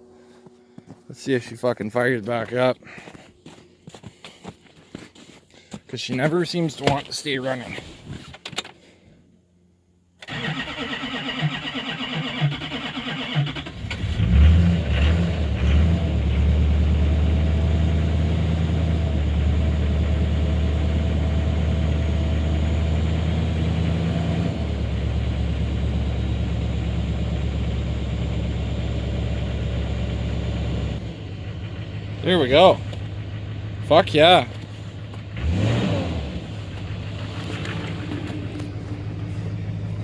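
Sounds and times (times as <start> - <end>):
diesel engine cranking on starter: 10.2 - 40.0
diesel engine revving and idling: 10.3 - 40.0.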